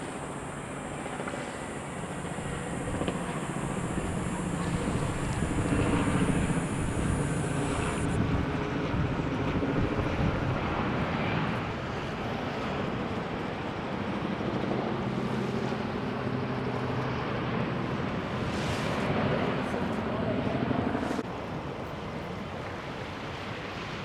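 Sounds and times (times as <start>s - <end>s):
high hiss: 0.0s - 8.2s
jet engine roar: 0.0s - 24.0s.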